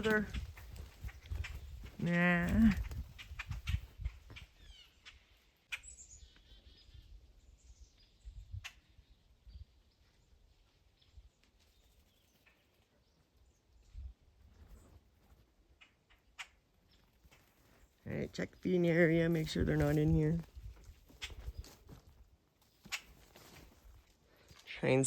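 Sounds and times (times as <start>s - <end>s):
low wind rumble: 0.0s - 4.8s
wild birds chirping: 0.0s - 25.0s.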